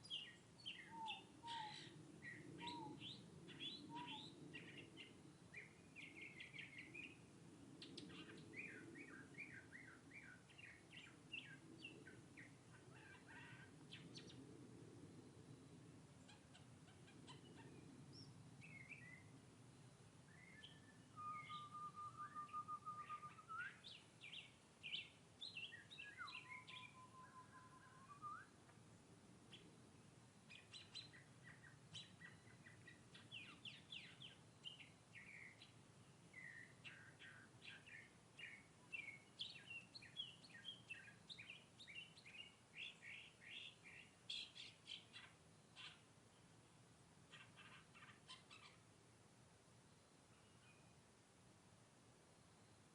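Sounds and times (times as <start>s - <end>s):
mockingbird singing: 0.0s - 7.2s, 16.2s - 19.3s, 20.3s - 28.5s, 30.5s - 46.1s, 47.3s - 48.8s.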